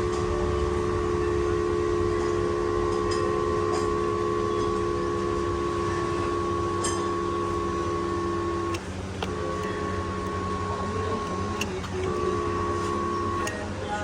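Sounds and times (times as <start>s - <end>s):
seat motor whining: 0.0s - 14.0s
seat motor click: 4.8s - 13.7s.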